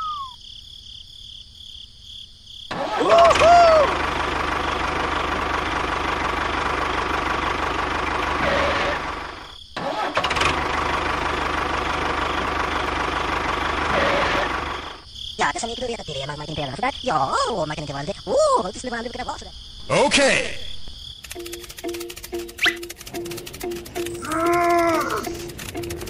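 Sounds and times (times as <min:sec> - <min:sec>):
crickets chirping: 0:00.0 - 0:03.9, 0:09.0 - 0:09.8, 0:13.4 - 0:26.0
tractor engine running: 0:02.7 - 0:15.0, 0:21.2 - 0:26.0.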